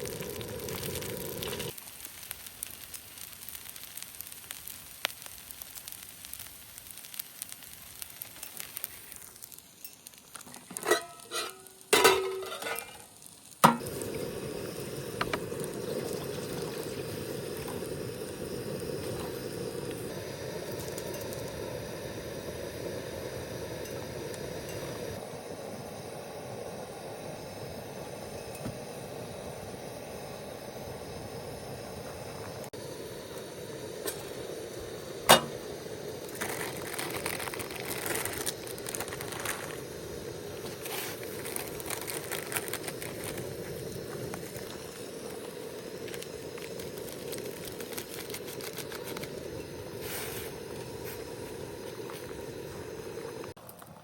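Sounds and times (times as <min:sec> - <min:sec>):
steady rain hiss: 0:00.0 - 0:54.0
rustling and handling noises: 0:36.3 - 0:39.8, 0:40.6 - 0:44.7, 0:46.1 - 0:49.3.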